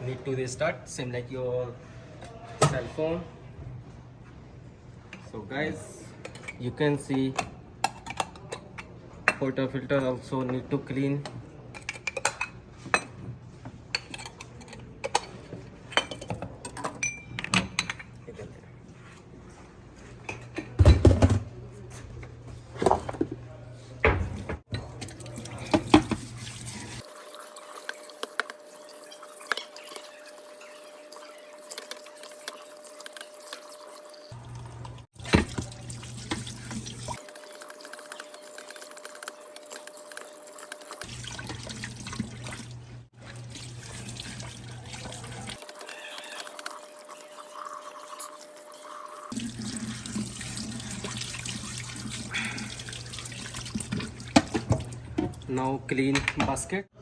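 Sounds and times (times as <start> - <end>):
tap water running into sink: 24.2 - 55.5.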